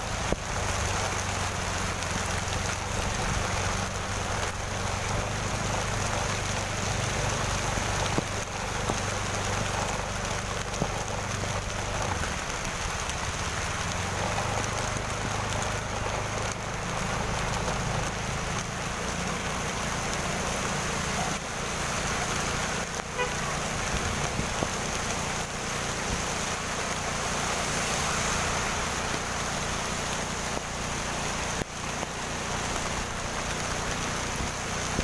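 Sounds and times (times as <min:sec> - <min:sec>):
heavy rain falling: 0:00.0 - 0:35.0.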